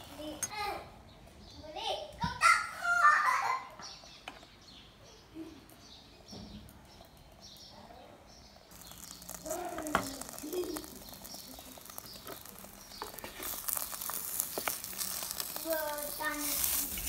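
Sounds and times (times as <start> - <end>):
omelette sizzling in a pan: 0.0 - 0.5, 8.3 - 17.0
birds chirping: 0.0 - 17.0.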